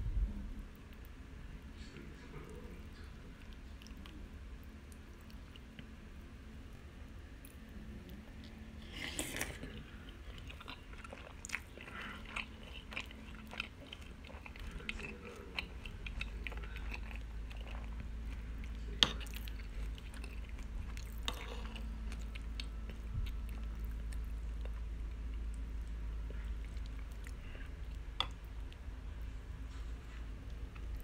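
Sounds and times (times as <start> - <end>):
cereal crunching while chewed: 8.4 - 28.8.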